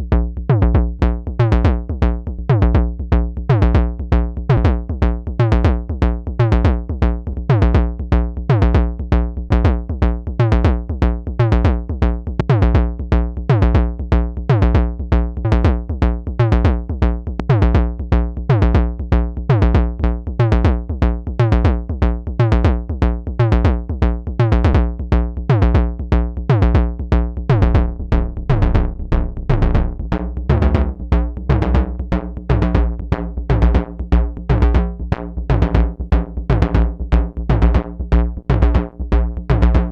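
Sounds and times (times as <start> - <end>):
low bass tone: 0.0 - 39.9
synthesizer drum hits: 27.5 - 32.8.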